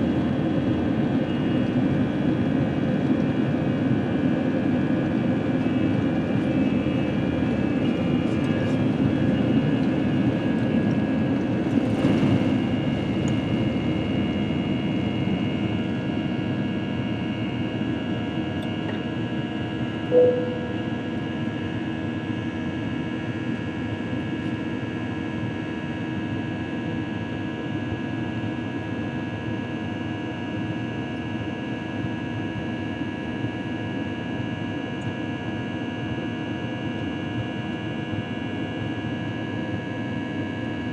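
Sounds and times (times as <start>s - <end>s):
jet airliner cabin drone: 0.0s - 25.5s
brief tone: 1.3s - 1.7s, 20.1s - 21.3s.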